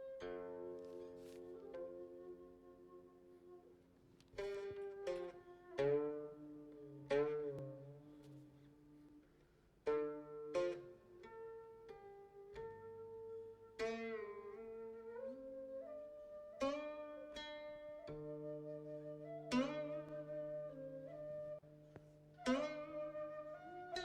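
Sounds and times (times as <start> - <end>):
plucked string instrument notes: 16.6 - 24.0.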